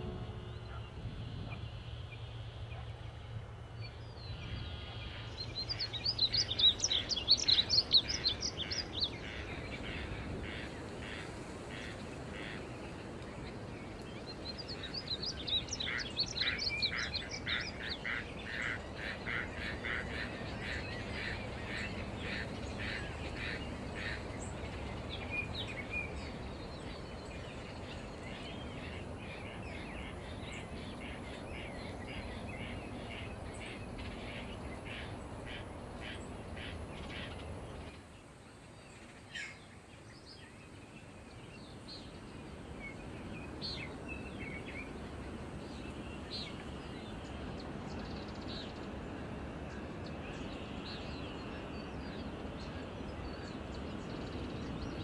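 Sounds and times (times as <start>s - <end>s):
low ambient background noise: 0.0s - 55.0s
songbirds chirping: 0.0s - 55.0s.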